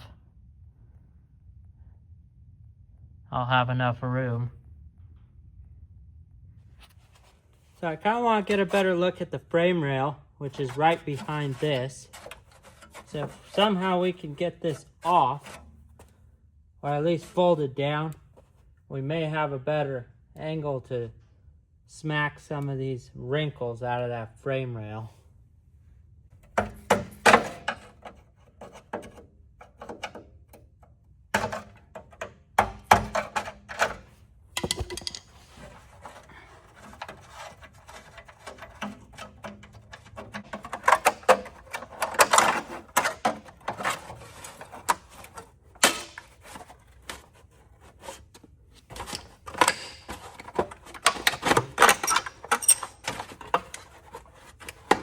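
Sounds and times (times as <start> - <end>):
metallic knocks and clanks of tools: 31.4 - 47.3, 48.9 - 55.0.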